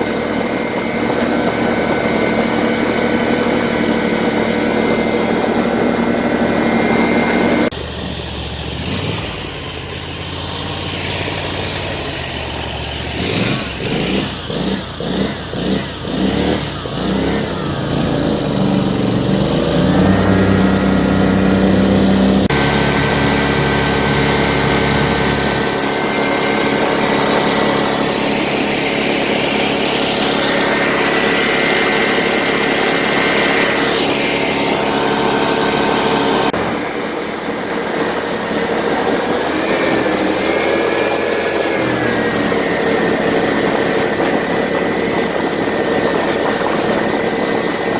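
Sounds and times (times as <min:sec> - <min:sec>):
buggy engine revving: 0:00.0 - 0:47.9.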